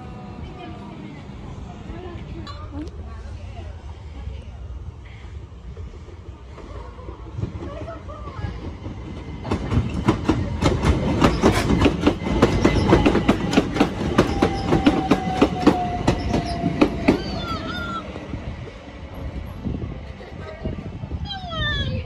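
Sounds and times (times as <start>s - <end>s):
train wheels clattering over rails: 5.7s - 17.5s.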